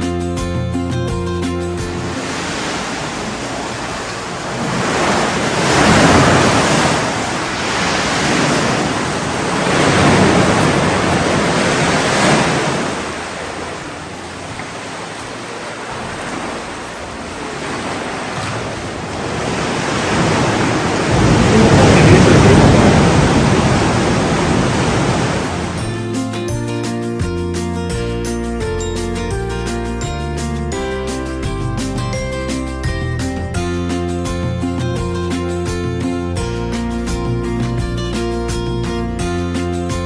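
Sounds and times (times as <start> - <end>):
sea waves breaking: 1.7 - 26.4.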